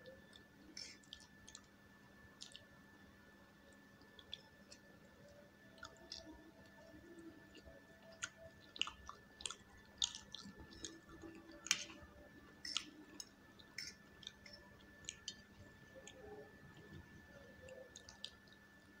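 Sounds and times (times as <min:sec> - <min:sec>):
faint steady hum: 0:00.0 - 0:19.0
wet chewing and slurping: 0:07.5 - 0:17.1.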